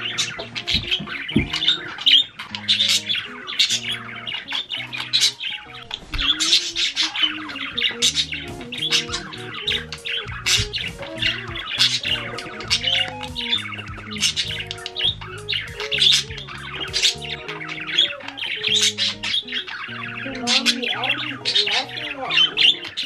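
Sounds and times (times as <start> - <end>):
background music with held notes: 0.0 - 23.0
budgerigars squawking and chirping: 0.0 - 23.0.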